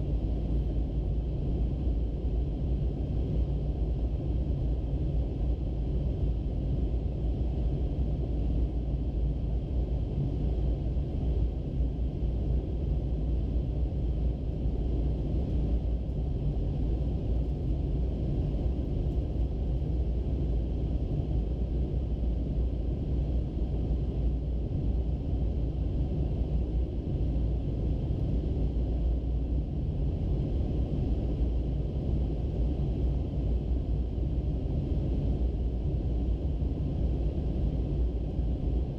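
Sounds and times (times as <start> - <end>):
airliner cabin engine rumble: 0.0 - 38.9.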